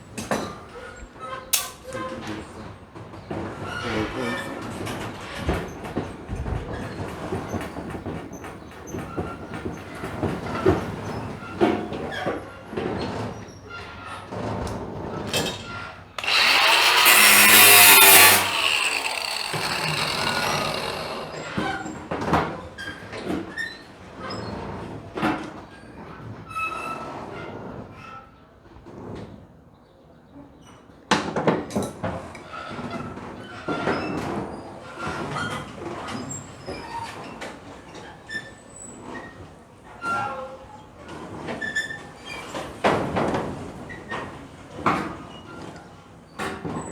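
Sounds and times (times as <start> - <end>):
power tool running: 16.2 - 21.9.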